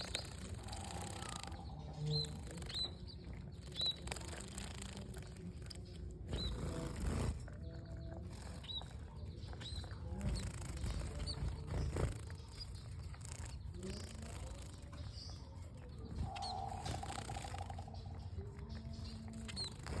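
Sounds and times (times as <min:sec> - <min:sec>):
buzzy rattling bird call: 0:00.0 - 0:02.9, 0:16.0 - 0:18.3
small birds chirping: 0:00.0 - 0:20.0.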